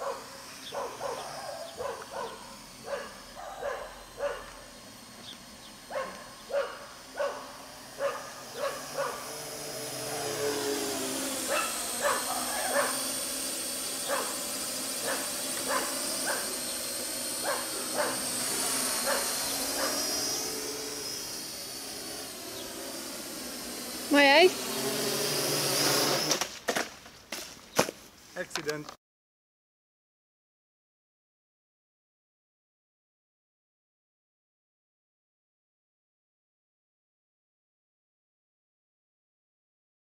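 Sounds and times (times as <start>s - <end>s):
dog barking: 0.0s - 4.6s, 5.9s - 9.2s, 11.5s - 13.0s, 14.1s - 14.4s, 15.0s - 16.4s, 17.4s - 18.2s, 19.0s - 20.0s
drone rotors whining: 0.0s - 26.5s.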